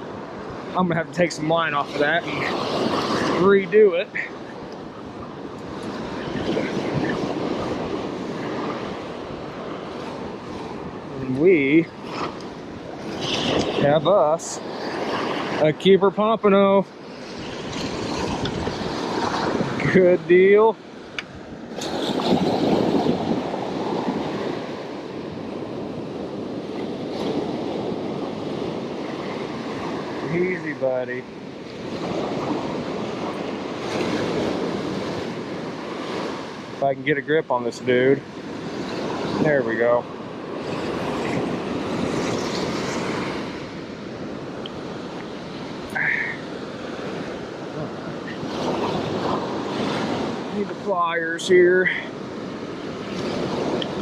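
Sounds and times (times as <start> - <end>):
surf breaking on beach: 0.0 - 54.0
wind: 0.0 - 54.0.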